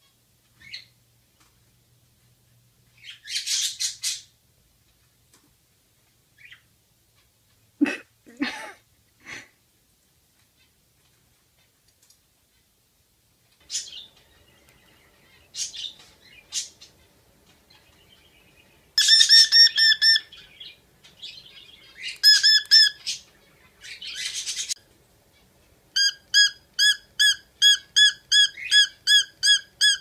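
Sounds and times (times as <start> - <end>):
parrot chirping and squawking: 3.0 - 4.3, 13.6 - 14.3, 19.0 - 30.0.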